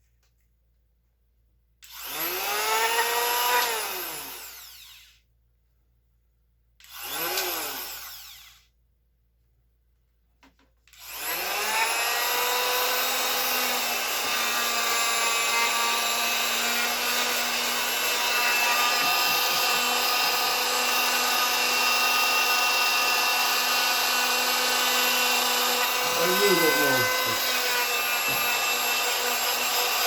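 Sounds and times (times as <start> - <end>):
power tool motor whining: 6.8 - 8.6, 10.9 - 30.0.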